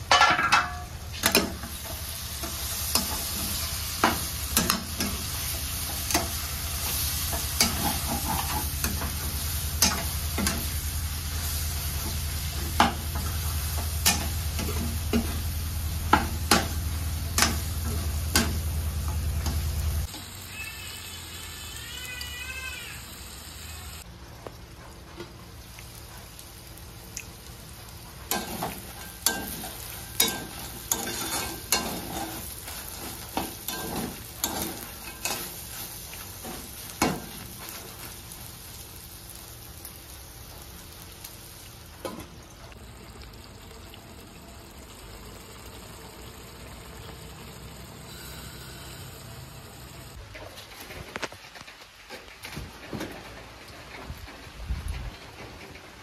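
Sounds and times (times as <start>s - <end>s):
food sizzling in a wok: 0.0s - 50.2s
metal spatula scraping a pan: 28.3s - 37.7s.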